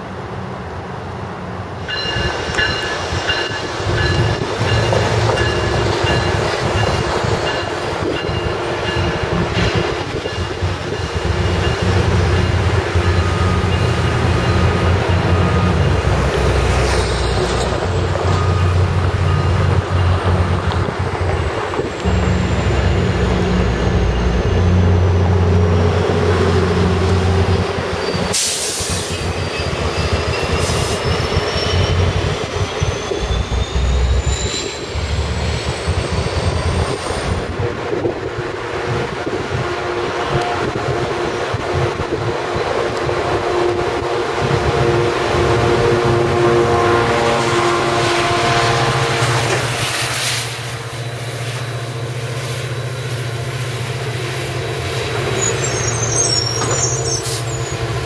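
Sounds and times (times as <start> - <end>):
diesel locomotive rumble: 0.0 - 58.0
train wheels squealing: 1.9 - 20.2, 21.3 - 25.4, 26.3 - 37.5, 49.6 - 58.0.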